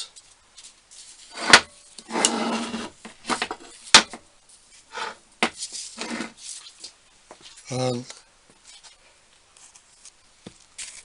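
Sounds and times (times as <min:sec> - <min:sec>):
scraping sounds: 0:00.6 - 0:04.0, 0:04.6 - 0:07.6.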